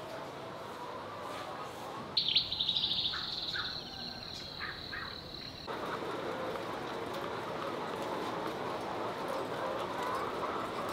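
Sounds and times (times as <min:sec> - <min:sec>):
steady background noise: 0:00.0 - 0:10.9
high-pitched bird trill and whistle: 0:02.2 - 0:05.7.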